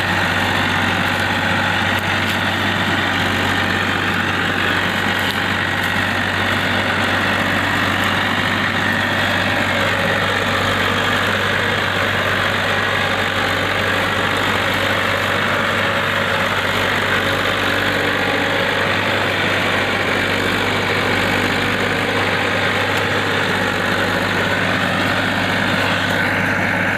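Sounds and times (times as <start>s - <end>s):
tractor engine running: 0.0s - 26.9s.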